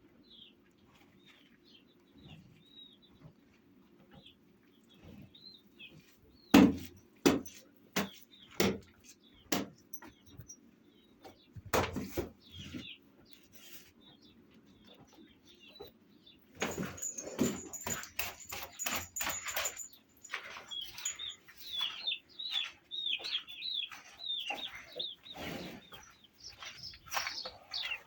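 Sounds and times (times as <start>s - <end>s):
birds chirping: 8.0s - 28.0s.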